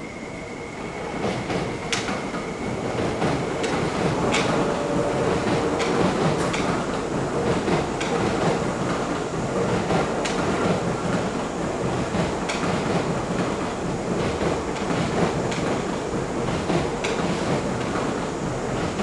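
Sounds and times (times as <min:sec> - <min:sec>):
train wheels on rails: 0:00.0 - 0:19.0
wheels clacking over rail joints: 0:03.2 - 0:11.3.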